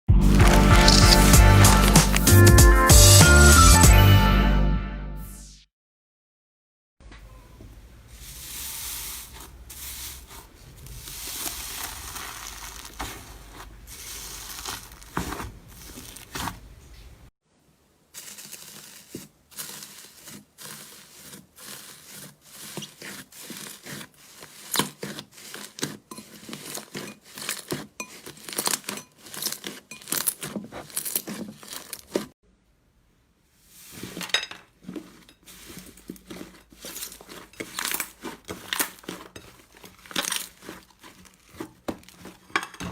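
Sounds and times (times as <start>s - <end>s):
slime squished and stretched: 8.8s - 16.8s, 34.8s - 42.5s.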